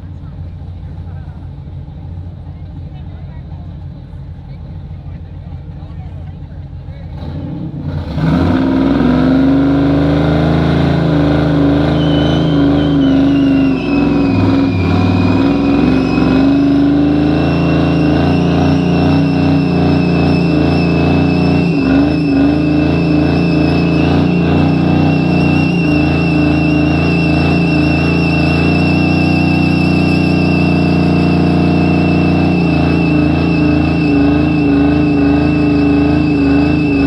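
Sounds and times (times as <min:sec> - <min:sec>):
truck engine at high revs: 0:00.0 - 0:37.0
tyres squealing: 0:08.3 - 0:37.0.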